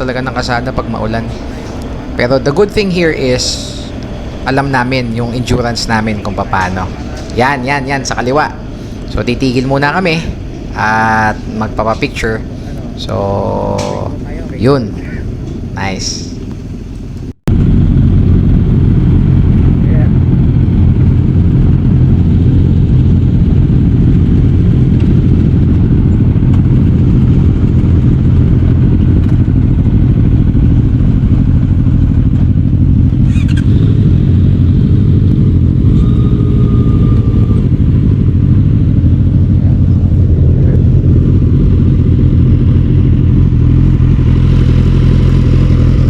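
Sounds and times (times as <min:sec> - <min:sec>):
motorcycle engine running: 0:00.0 - 0:46.0
short high tone: 0:35.8 - 0:38.2.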